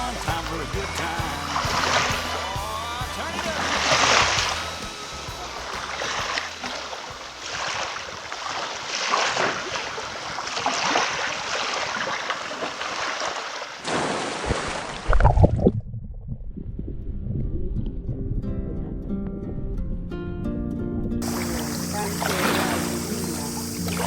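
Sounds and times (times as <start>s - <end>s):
heavy low thumps: 0.0s - 7.5s
music: 0.0s - 7.8s, 18.1s - 24.0s
wind noise on microphone: 0.0s - 12.2s, 15.1s - 24.0s
seawater washing and splashing: 0.0s - 15.7s, 21.2s - 24.0s.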